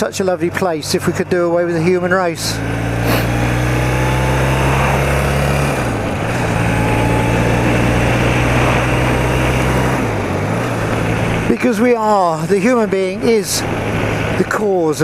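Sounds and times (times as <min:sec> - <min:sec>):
motorcycle engine running: 0:00.0 - 0:14.9
wind rushing: 0:03.1 - 0:11.5.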